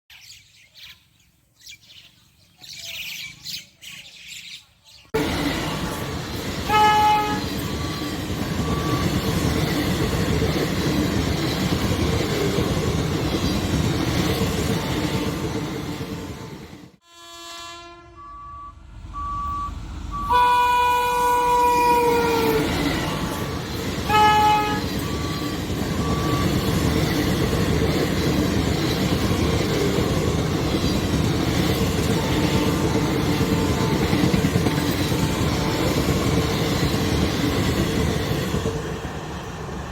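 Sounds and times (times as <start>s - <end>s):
train wheels rumbling: 5.2s - 17.0s, 18.8s - 39.9s
train horn: 6.6s - 9.0s, 17.0s - 23.4s, 24.0s - 26.5s.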